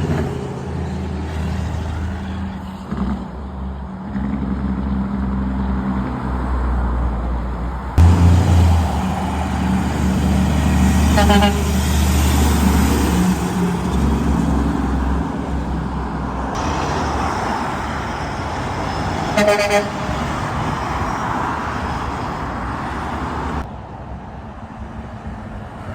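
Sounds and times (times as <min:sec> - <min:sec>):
trucks driving past: 0:00.0 - 0:25.9
vehicle horn toot: 0:11.1 - 0:11.8, 0:19.3 - 0:20.0.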